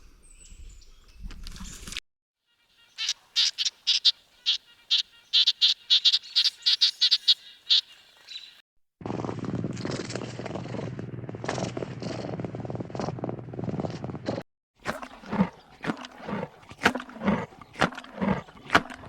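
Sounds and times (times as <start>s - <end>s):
small animal chirping: 2.8s - 8.4s.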